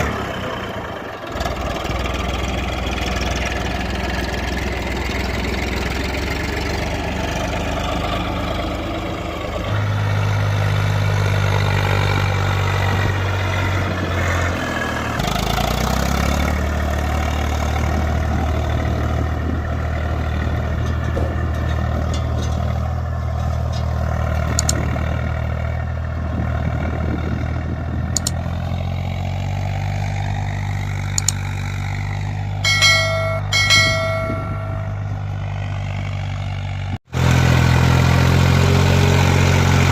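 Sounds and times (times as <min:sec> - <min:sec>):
tractor diesel engine running: 0:00.0 - 0:39.9
short beeps: 0:32.6 - 0:35.1.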